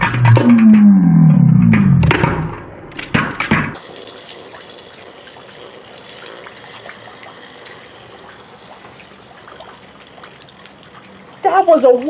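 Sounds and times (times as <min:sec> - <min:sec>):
water drips ticking: 0:02.9 - 0:12.0.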